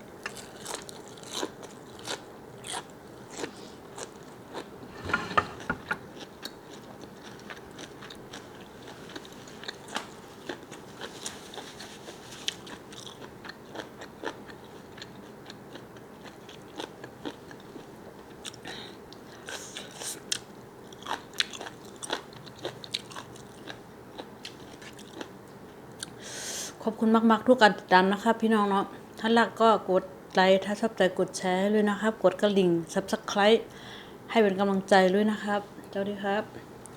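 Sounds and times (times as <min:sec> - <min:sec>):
person chewing and biting: 0:00.3 - 0:04.7, 0:12.6 - 0:15.6, 0:19.8 - 0:25.3.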